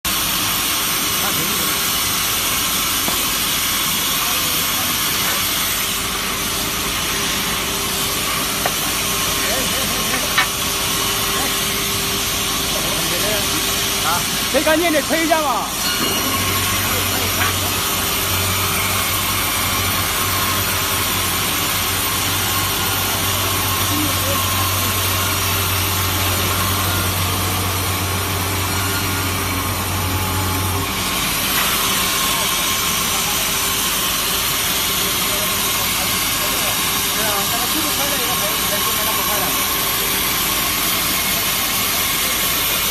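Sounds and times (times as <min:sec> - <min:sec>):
workshop machinery hissing: 0:00.1 - 0:42.9.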